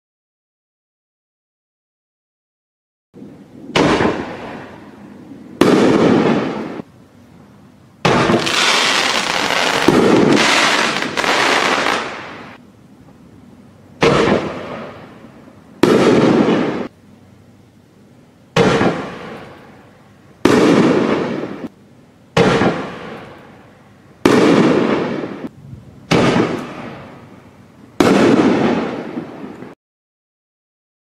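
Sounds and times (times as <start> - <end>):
firework shells banging: 8.0 - 12.6, 14.0 - 15.1, 18.6 - 19.7.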